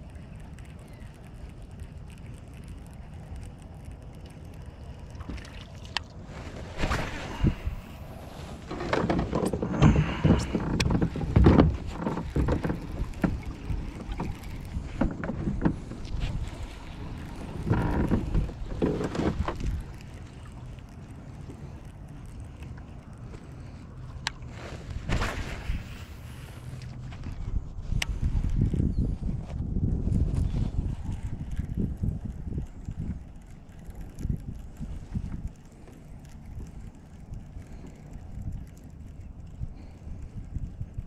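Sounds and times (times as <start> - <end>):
water noise: 0.0 - 41.0
wind noise on microphone: 6.2 - 20.9, 23.7 - 41.0
knocks and rattles on kayak: 8.3 - 20.5.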